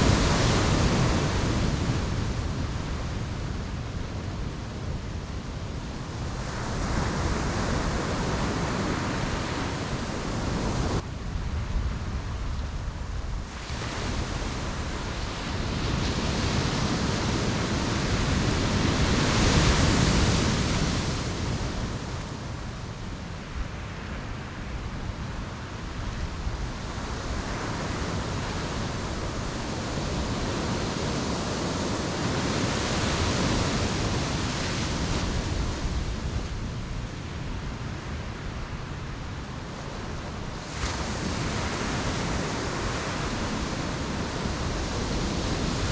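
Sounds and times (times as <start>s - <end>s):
surf breaking on shore: 6.4s - 11.0s.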